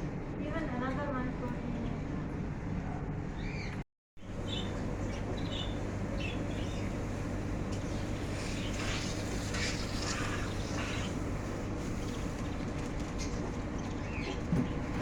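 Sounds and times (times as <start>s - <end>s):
steady low hum: 0.0s - 15.0s
small birds chirping: 3.4s - 14.5s.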